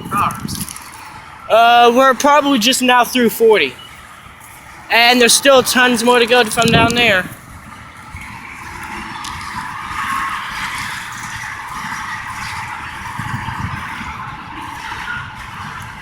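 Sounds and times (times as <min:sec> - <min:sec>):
train rumble: 0:00.0 - 0:16.0.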